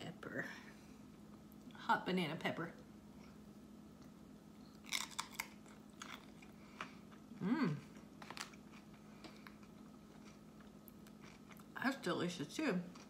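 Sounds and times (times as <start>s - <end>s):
crisp crunches of chewing: 4.8s - 11.8s
person humming: 7.4s - 7.9s.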